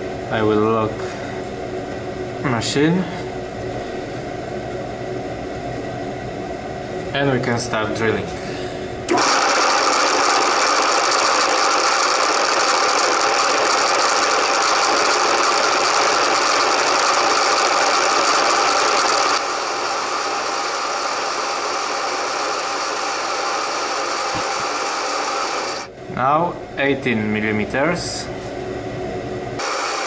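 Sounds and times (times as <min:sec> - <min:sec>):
milling machine drilling steel: 0:09.1 - 0:25.9.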